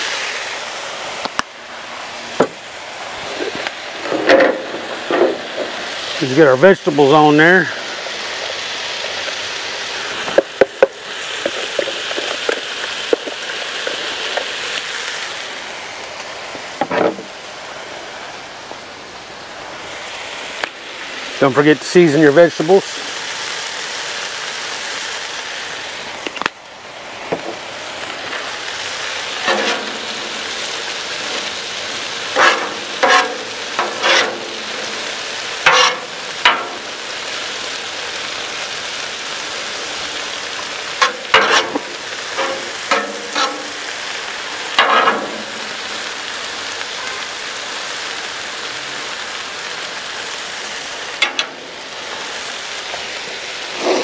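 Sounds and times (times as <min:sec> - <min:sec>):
vegetables sizzling on griddle: 0:00.0 - 0:54.0
metal spatula scraping griddle: 0:03.3 - 0:06.4, 0:28.3 - 0:37.0, 0:40.8 - 0:44.0, 0:44.7 - 0:46.1, 0:51.2 - 0:51.8, 0:53.7 - 0:54.0.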